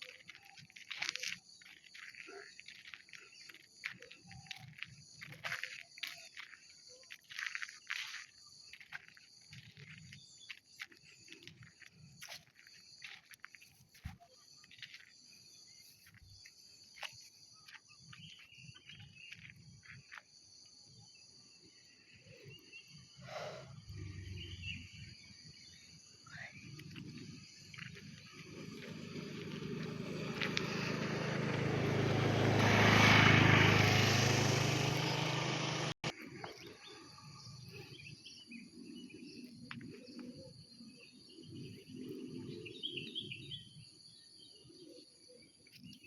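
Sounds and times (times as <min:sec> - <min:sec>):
insect chirring: 0:24.2 - 0:30.9.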